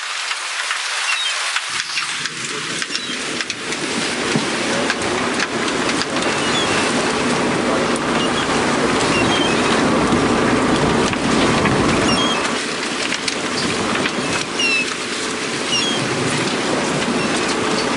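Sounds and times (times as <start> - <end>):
hiss like running water: 0.0 - 3.4
low rumble: 1.8 - 17.9.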